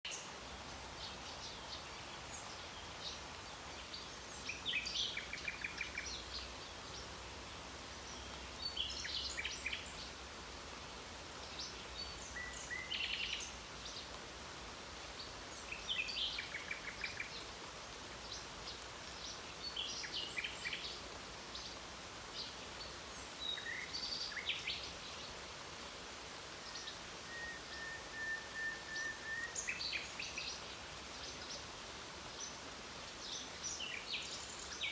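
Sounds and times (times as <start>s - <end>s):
rain hissing: 0.1s - 34.9s
nightingale singing: 4.1s - 6.5s, 26.6s - 30.6s.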